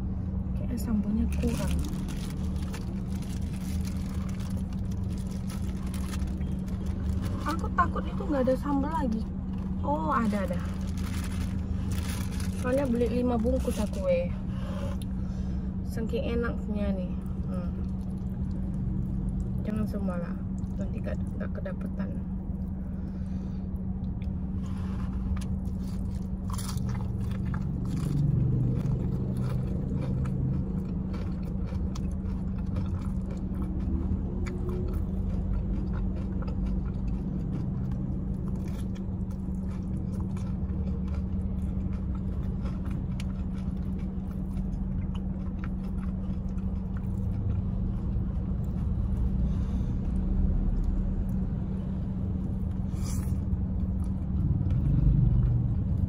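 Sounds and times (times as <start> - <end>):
low car hum: 0.0 - 56.0
person chewing crunchy food: 1.4 - 7.6, 9.4 - 15.2, 17.2 - 19.7, 22.3 - 51.6, 52.2 - 56.0.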